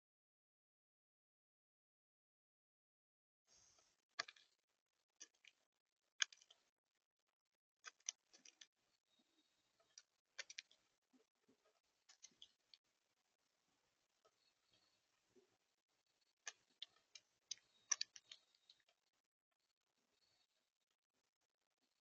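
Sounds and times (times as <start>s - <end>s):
woodpecker pecking: 16.4s - 19.0s.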